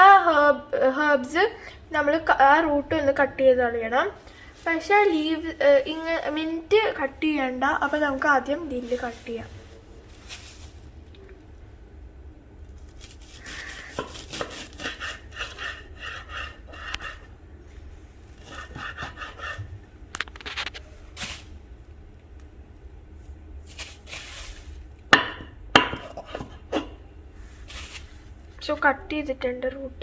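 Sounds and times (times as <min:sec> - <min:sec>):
herbs rustling on cutting board: 0:04.1 - 0:11.2, 0:23.6 - 0:24.9, 0:27.4 - 0:28.7
knife strokes on cutting board: 0:13.0 - 0:17.3, 0:18.3 - 0:19.7, 0:26.3 - 0:28.3.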